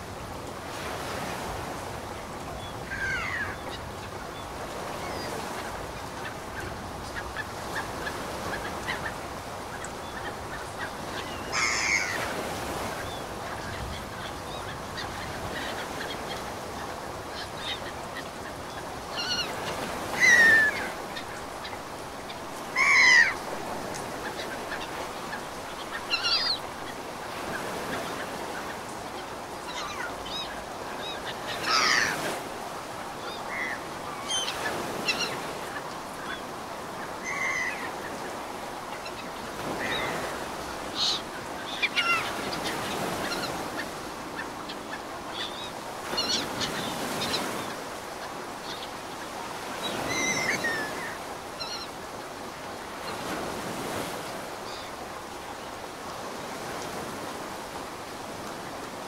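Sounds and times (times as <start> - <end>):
ocean surf: 0.0 - 59.0
birds honking: 11.0 - 12.3, 31.5 - 32.3.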